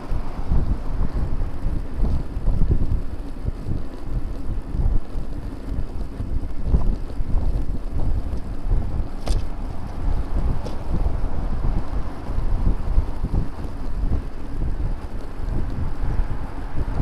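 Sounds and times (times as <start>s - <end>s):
wind buffeting microphone: 0.0s - 17.0s
sharp click: 9.2s - 9.5s.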